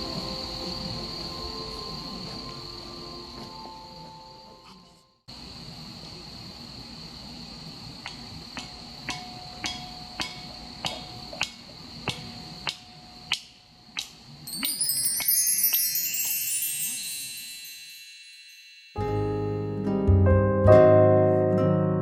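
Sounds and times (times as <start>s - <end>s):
crickets trilling: 0.0s - 19.0s
sharp ringing knocks: 8.0s - 14.8s.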